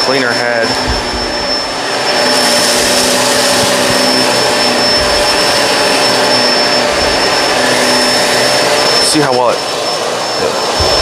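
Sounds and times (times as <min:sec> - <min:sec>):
upright vacuum cleaner motor whine: 0:00.0 - 0:11.0.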